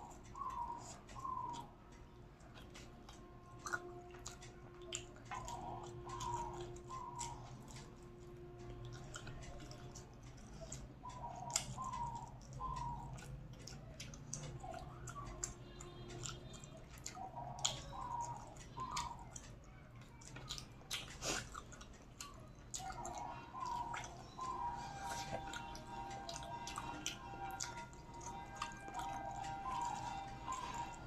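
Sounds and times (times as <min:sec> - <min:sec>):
person chewing: 0:00.0 - 0:31.0
mouth smacks: 0:20.3 - 0:31.0.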